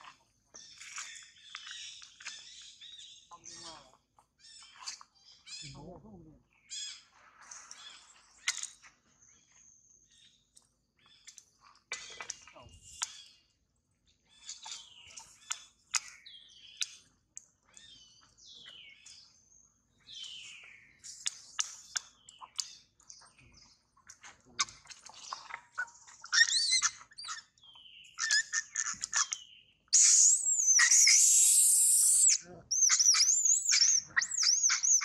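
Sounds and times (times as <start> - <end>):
birds chirping: 0.5 - 7.1, 20.0 - 35.0
monkey screaming: 30.0 - 35.0.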